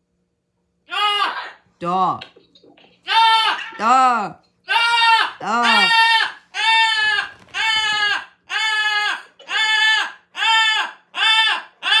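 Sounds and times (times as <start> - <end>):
parrot calling: 0.9 - 1.7, 2.9 - 4.0, 4.6 - 12.0.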